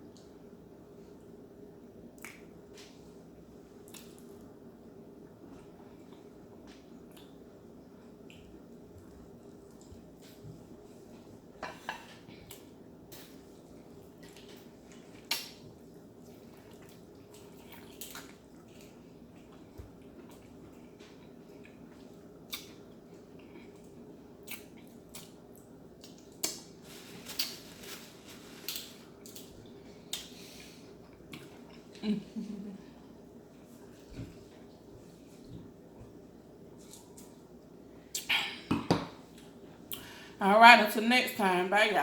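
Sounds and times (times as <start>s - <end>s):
faint steady hum: 0.0s - 42.0s
chewing with wet crackles: 3.7s - 4.5s, 5.5s - 26.7s, 31.0s - 32.0s.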